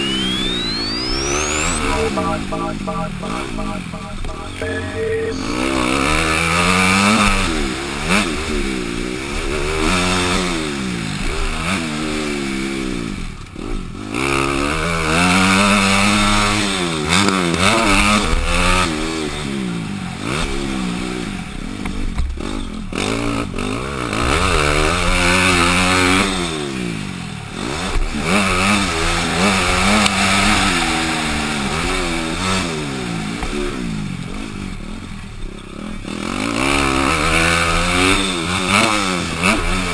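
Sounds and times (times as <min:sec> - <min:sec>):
dirt bike engine revving: 0:00.0 - 0:12.4, 0:22.4 - 0:33.0.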